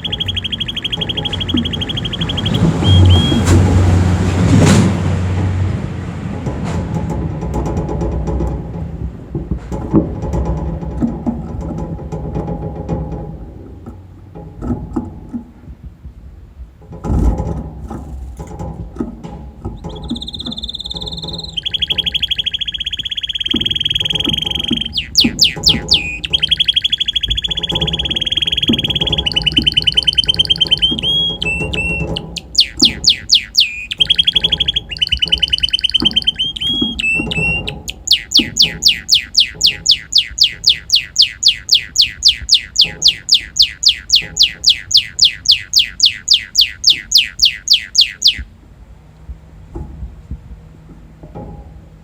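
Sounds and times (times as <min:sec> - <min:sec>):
canary singing trills: 0:00.0 - 0:04.5, 0:19.8 - 0:48.5.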